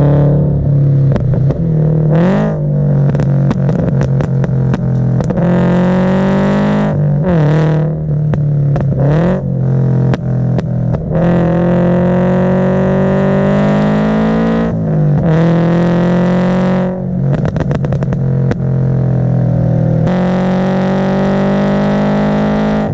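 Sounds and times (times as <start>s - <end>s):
car engine accelerating: 0.0s - 22.9s
exhaust pops and crackles: 1.1s - 1.7s, 2.9s - 5.7s, 8.1s - 9.2s, 10.0s - 11.2s, 17.2s - 18.9s.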